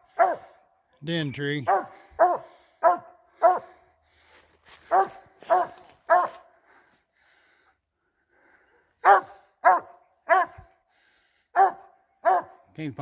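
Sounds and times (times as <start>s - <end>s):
dog barking: 0.0s - 0.6s, 1.6s - 3.8s, 4.8s - 6.5s, 9.0s - 10.7s, 11.5s - 12.6s.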